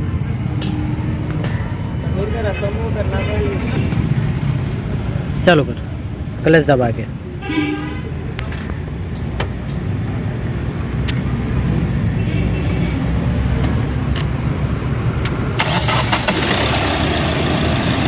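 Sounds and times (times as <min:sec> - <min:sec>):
diesel engine running: 0:14.1 - 0:18.0.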